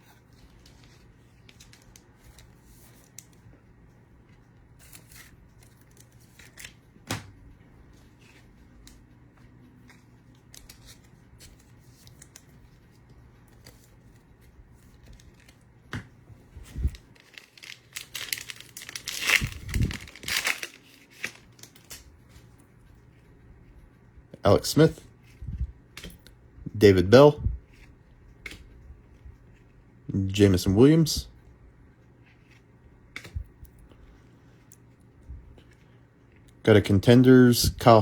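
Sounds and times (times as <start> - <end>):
plastic wrapper tearing and crinkling: 16.9 - 22.0.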